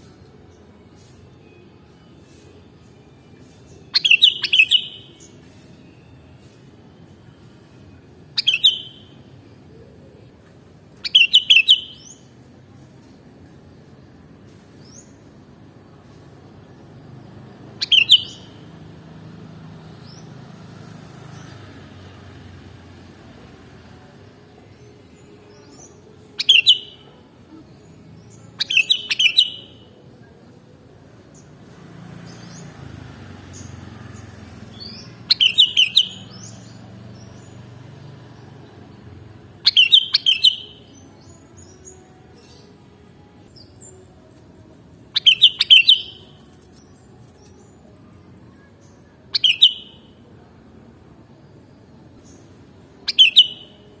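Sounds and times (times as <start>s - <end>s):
bulbul chirpy calls: 4.0s - 5.3s, 11.0s - 12.1s, 17.7s - 18.6s, 28.6s - 30.0s, 34.7s - 36.8s, 39.6s - 41.0s, 45.2s - 46.4s, 49.3s - 50.2s, 53.1s - 53.9s.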